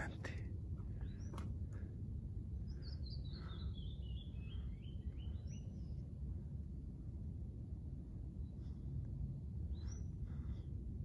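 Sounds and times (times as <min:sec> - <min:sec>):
songbird singing: 0:00.0 - 0:06.4, 0:09.5 - 0:10.8
low outdoor rumble: 0:00.0 - 0:11.0.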